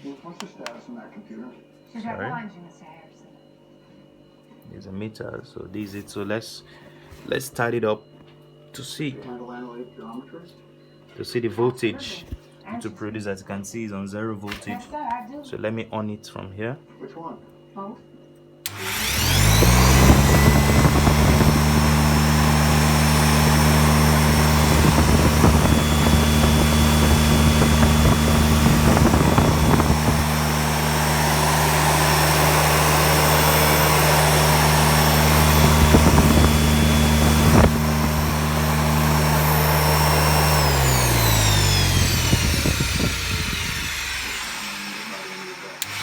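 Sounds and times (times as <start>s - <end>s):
generator humming and whining: 18.7s - 46.0s.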